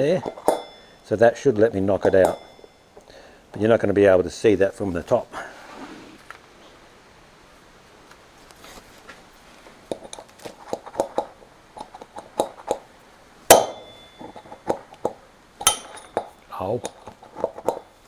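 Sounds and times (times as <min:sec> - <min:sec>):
hammer tapping steel pin: 0:00.2 - 0:01.1, 0:02.0 - 0:03.1, 0:13.5 - 0:14.8, 0:15.6 - 0:16.3.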